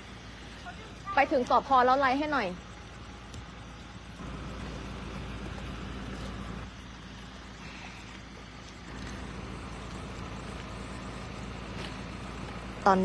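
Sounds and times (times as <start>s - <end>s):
outdoor background noise: 0.0s - 13.0s
car engine idling: 2.7s - 13.0s.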